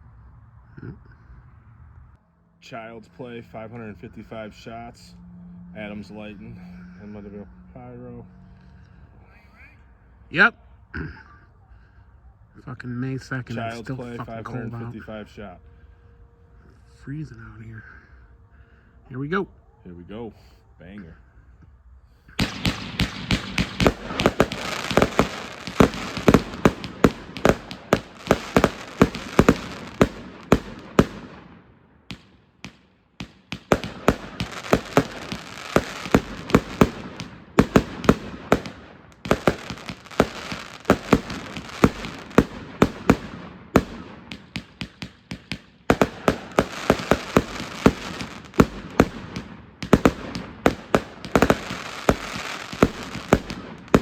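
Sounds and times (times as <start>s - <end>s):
firework cake firing rapid shots: 22.4s - 54.0s.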